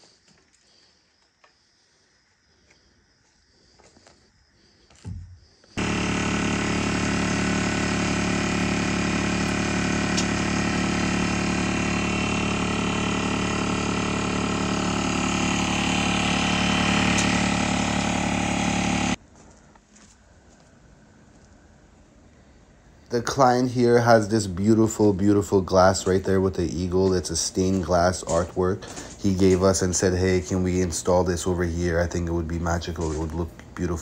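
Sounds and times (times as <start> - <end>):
motor running: 5.8 - 19.2.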